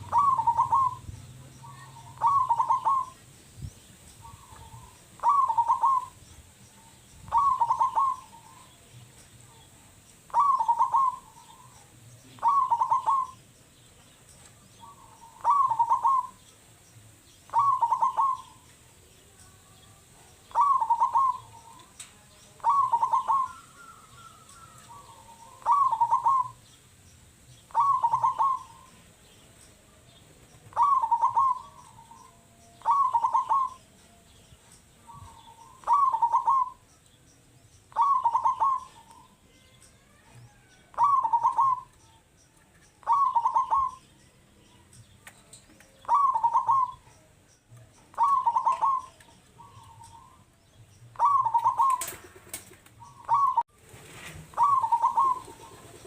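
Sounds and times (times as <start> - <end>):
dove cooing: 0.0 - 3.3, 4.2 - 6.2, 6.8 - 8.9, 10.3 - 13.4, 14.8 - 16.5, 17.5 - 18.7, 20.4 - 22.0, 22.6 - 26.6, 27.7 - 29.0, 30.7 - 33.8, 35.0 - 36.8, 37.9 - 39.4, 40.5 - 42.0, 43.0 - 44.0, 46.0 - 47.1, 48.1 - 50.4, 51.1 - 56.0.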